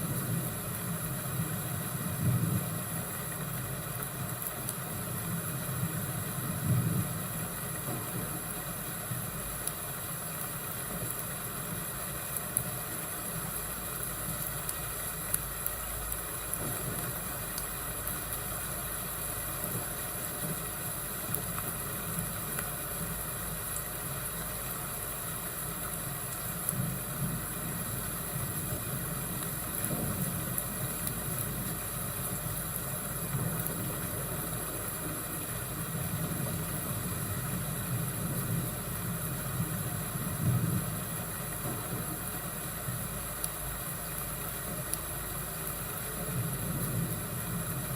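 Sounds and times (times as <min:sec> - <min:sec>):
rumble of thunder: 0:00.0 - 0:03.2, 0:05.7 - 0:08.8, 0:26.6 - 0:43.1, 0:46.2 - 0:47.9
fire crackles: 0:00.0 - 0:47.9.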